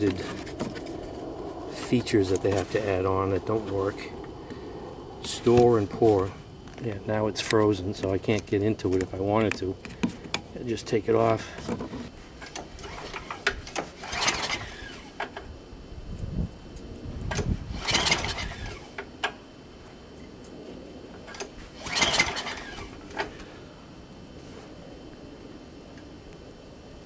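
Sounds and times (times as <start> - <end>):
engine pull-start whirring: 12.4 - 15.4, 17.3 - 19.1, 21.3 - 23.4.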